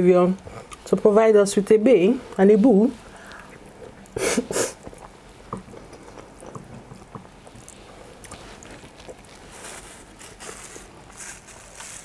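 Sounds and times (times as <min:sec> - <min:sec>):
quiet chewing: 0:00.4 - 0:00.9, 0:03.0 - 0:12.0.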